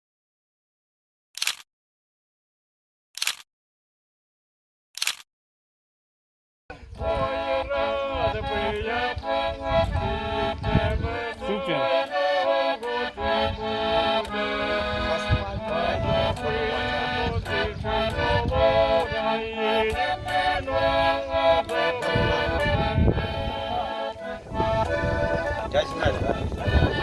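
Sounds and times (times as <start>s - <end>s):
accordion playing chords: 6.7s - 27.0s.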